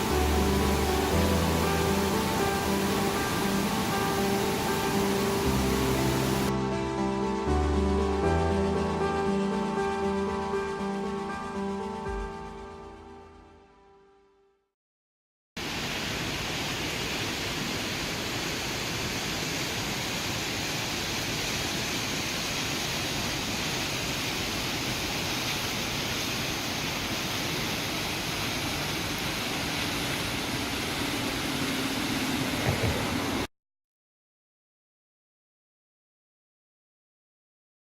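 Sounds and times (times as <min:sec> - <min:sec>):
waterfall rushing: 0:00.0 - 0:06.5, 0:15.6 - 0:33.5.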